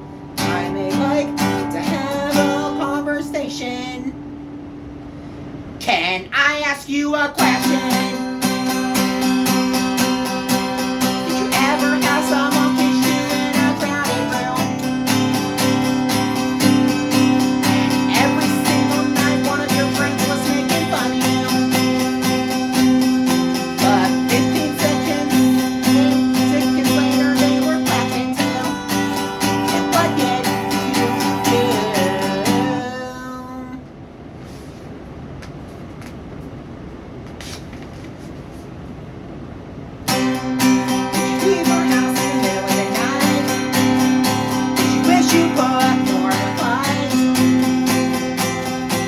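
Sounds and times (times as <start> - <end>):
acoustic guitar strumming: 0.0 - 33.8, 40.0 - 49.0.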